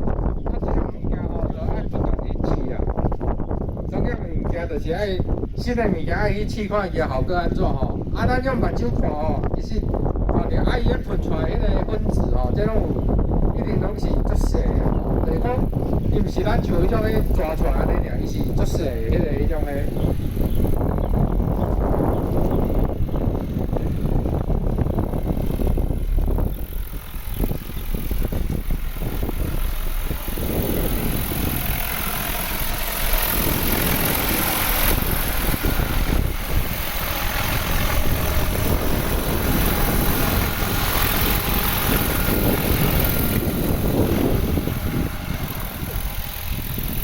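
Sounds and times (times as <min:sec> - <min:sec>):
helicopter engine and rotor noise: 0:00.0 - 0:47.0.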